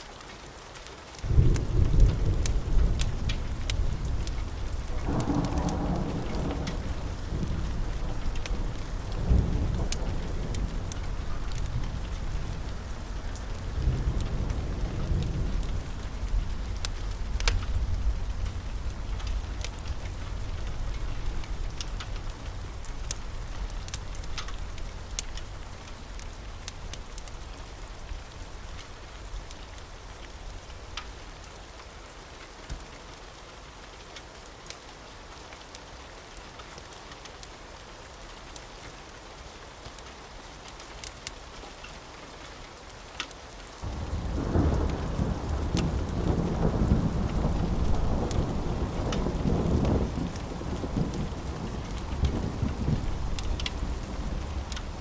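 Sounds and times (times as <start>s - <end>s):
heavy rain: 0.0s - 55.0s
sharp crackling ticks: 0.2s - 32.9s, 39.8s - 55.0s
deep thunder rumble: 1.3s - 27.8s, 43.8s - 55.0s.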